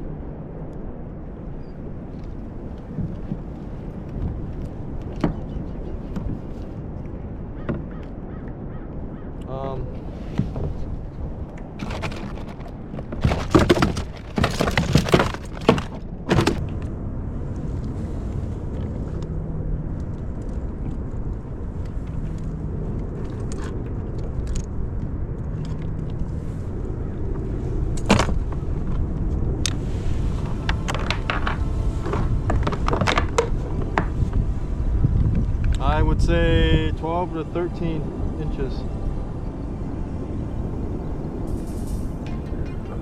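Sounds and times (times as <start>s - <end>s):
wind and water rumble: 0.0s - 43.0s
fishing gear knocking and clattering: 11.7s - 16.6s.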